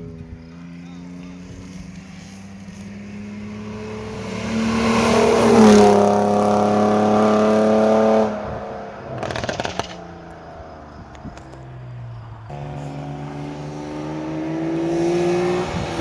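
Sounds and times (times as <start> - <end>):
rally car engine passing: 0.1 - 16.0
clicking noise: 9.2 - 10.5.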